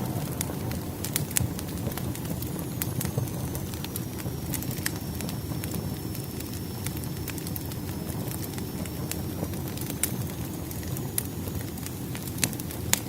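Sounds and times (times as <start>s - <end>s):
burning wood crackling and popping: 0.0s - 13.0s
fire flames rumbling: 0.0s - 13.0s.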